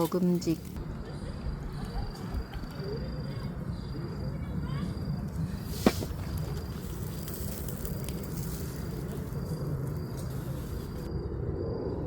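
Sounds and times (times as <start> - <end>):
charcoal fire crackling: 0.0 - 0.8, 4.7 - 11.1.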